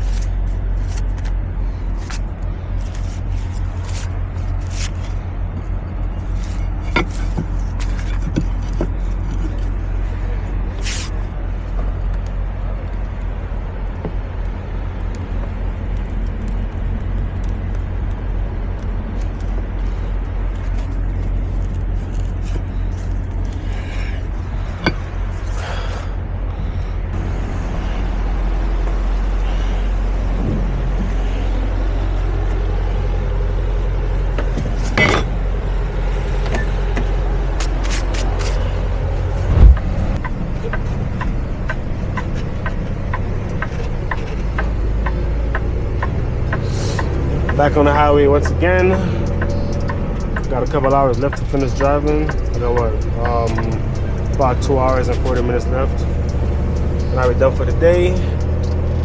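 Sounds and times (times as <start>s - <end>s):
road noise: 0.0s - 59.0s
truck engine drone: 0.0s - 59.0s
thump: 39.5s - 39.9s.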